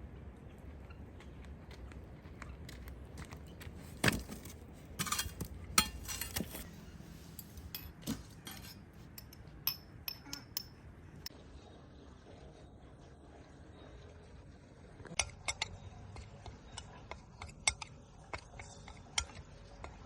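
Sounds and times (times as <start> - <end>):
kitchenware clinking and knocking: 5.0 - 6.6, 7.4 - 10.8.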